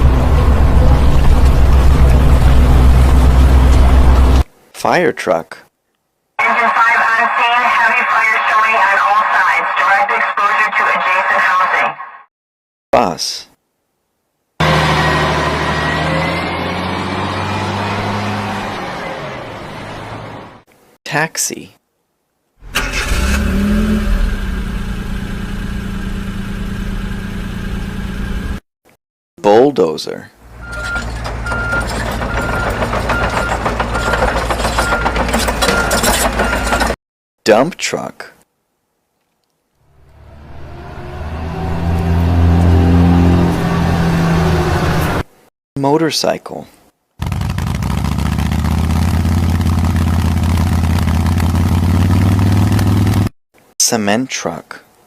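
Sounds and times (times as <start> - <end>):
motorcycle engine running: 47.2 - 53.3.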